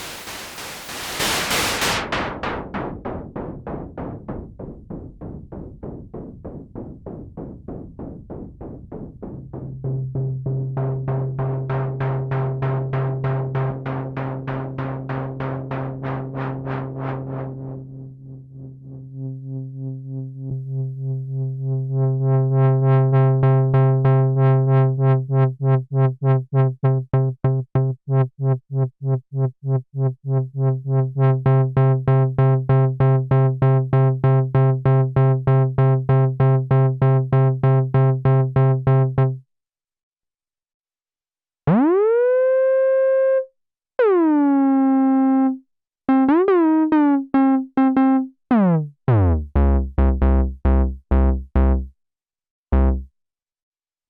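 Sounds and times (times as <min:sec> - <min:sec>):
synthesizer tone sweeping down: 0:00.0 - 0:02.3, 0:41.7 - 0:43.4, 0:52.8 - 0:53.1
synthesizer notes gliding up: 0:41.7 - 0:43.4, 0:52.8 - 0:53.1
synthesizer pulsing note: 0:41.7 - 0:43.4, 0:52.8 - 0:53.1.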